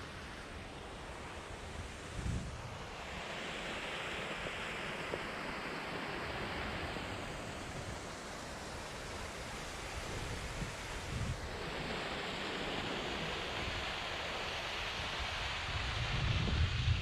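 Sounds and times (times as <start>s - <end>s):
wind rumble on microphone: 1.6s - 3.2s, 9.8s - 17.0s.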